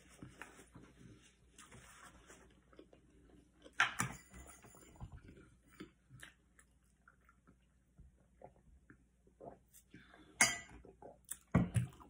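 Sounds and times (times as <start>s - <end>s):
person chewing: 2.4s - 3.8s, 10.8s - 12.0s.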